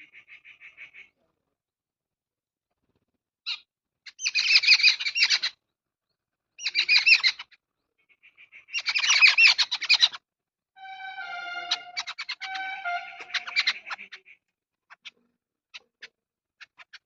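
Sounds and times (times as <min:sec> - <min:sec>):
steady held tone: 0:10.8 - 0:13.8.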